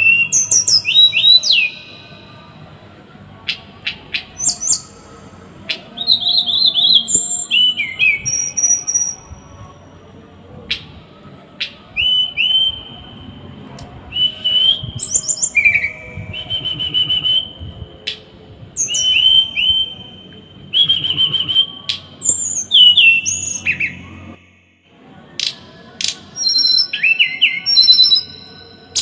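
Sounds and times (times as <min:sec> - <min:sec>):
songbird singing: 0:00.0 - 0:02.7, 0:03.4 - 0:09.6, 0:11.6 - 0:24.8, 0:25.4 - 0:29.0.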